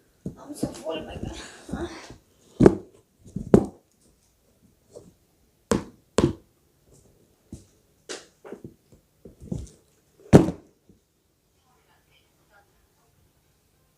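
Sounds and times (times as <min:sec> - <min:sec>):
sharp knocks on hard surface: 0:05.7 - 0:06.4, 0:10.3 - 0:10.6.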